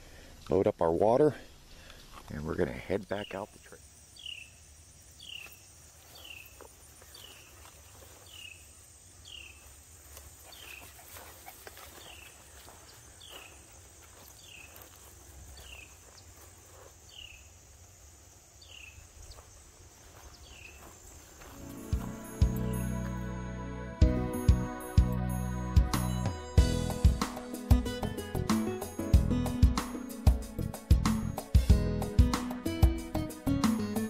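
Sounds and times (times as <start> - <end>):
faint rustling: 9.6 - 17.4
high-pitched insect drone: 20.8 - 23.6.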